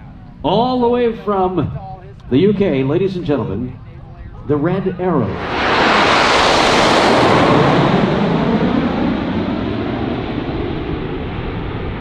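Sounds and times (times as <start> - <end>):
jets roaring overhead: 0.3 - 12.0.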